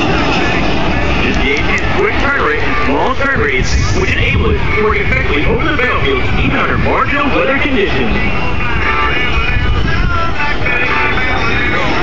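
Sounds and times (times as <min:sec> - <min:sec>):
jet engines rumbling and whining: 0:00.0 - 0:12.0
music: 0:04.1 - 0:12.0.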